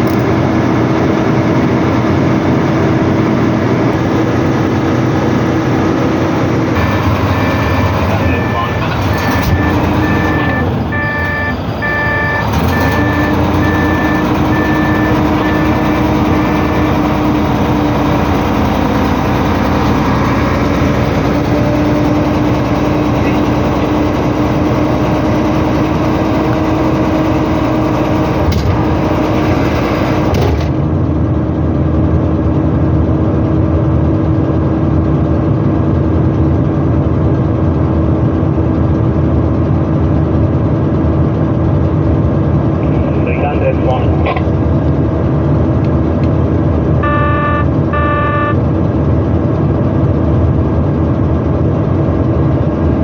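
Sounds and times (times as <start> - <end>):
diesel truck engine running: 0.0 - 53.0
short high electronic beeps: 7.4 - 15.8, 47.0 - 48.6.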